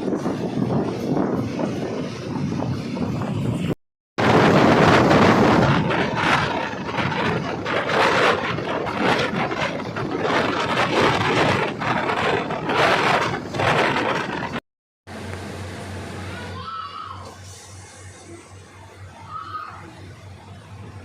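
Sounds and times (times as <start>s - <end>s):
moving train rushing and rattling: 0.0s - 21.0s.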